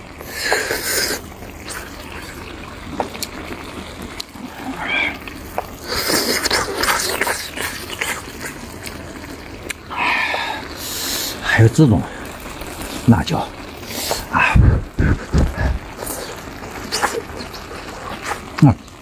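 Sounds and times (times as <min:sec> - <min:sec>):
person chewing and slurping: 0:00.2 - 0:11.4, 0:12.1 - 0:18.6.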